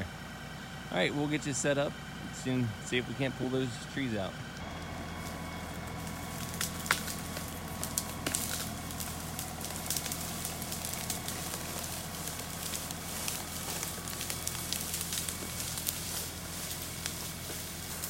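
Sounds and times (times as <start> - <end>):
tractor diesel engine idling: 0.0 - 18.0
crackles and snaps: 4.6 - 18.0.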